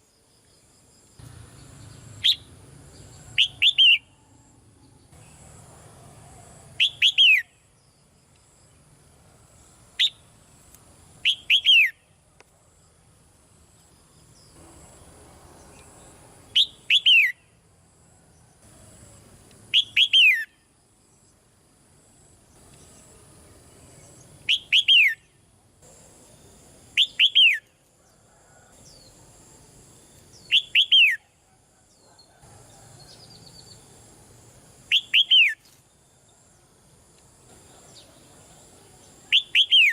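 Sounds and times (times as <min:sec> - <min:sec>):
bulbul calling: 0:02.2 - 0:02.5, 0:03.2 - 0:04.2, 0:06.8 - 0:07.5, 0:11.2 - 0:12.0, 0:16.6 - 0:17.4, 0:19.7 - 0:20.5, 0:24.5 - 0:25.2, 0:27.0 - 0:27.6, 0:30.4 - 0:31.3, 0:34.9 - 0:35.6, 0:39.3 - 0:39.9.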